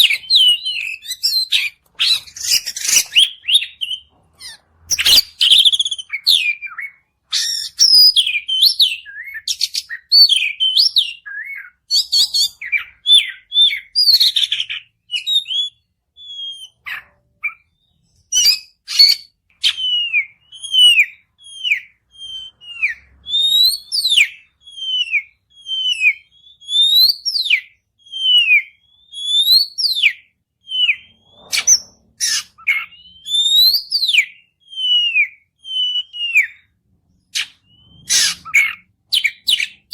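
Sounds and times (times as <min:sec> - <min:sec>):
magpie-robin singing: 0:00.0 - 0:39.9
falling whistles: 0:17.4 - 0:36.8, 0:37.4 - 0:39.9.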